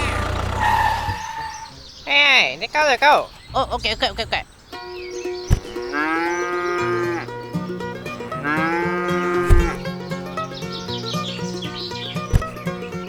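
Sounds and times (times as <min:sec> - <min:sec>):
long rising calls: 0:00.0 - 0:02.0
music with plucked notes: 0:04.7 - 0:13.0.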